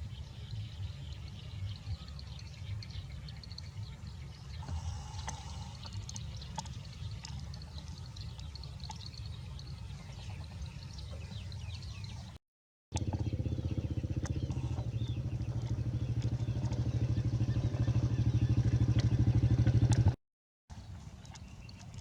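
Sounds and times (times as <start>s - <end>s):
engine pulsing rapidly: 12.9s - 20.2s
low rumble: 13.0s - 20.2s.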